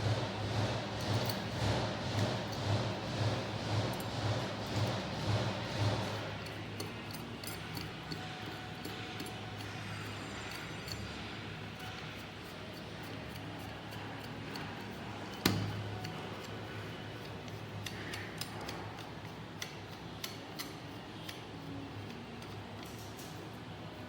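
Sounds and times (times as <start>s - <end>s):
steady low hum: 0.0s - 22.9s
metal parts and tools clinking: 6.4s - 16.6s.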